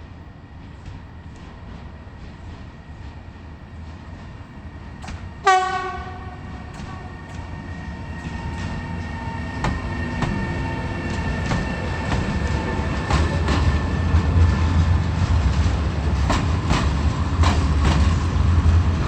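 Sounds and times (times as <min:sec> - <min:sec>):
train rumble: 0:00.0 - 0:19.0
train horn blast: 0:05.4 - 0:07.2.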